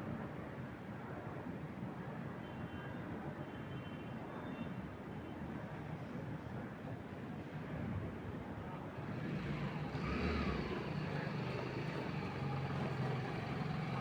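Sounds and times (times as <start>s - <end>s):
vehicle engine drone: 9.1s - 14.0s.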